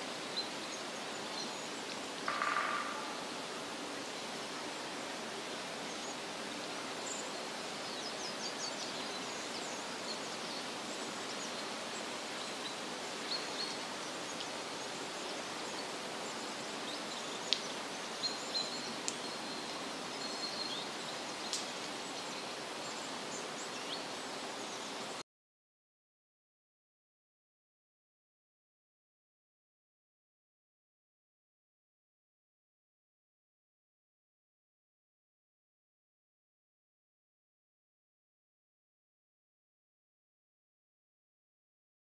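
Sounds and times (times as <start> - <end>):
small birds chirping: 5.4 - 25.2.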